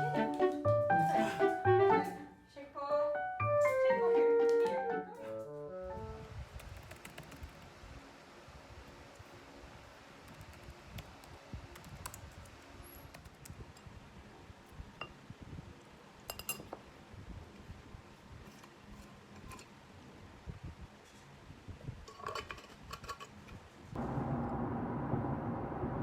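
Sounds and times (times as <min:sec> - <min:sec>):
low room rumble: 0:23.9 - 0:26.0.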